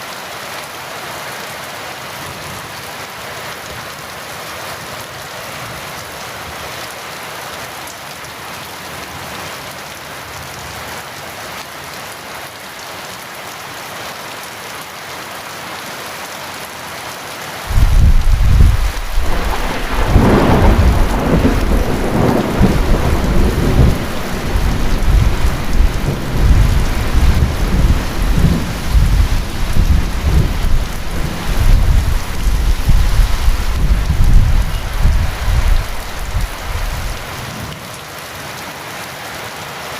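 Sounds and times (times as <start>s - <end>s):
heavy rain: 0.0s - 39.9s
thunder rumbling: 17.7s - 37.4s.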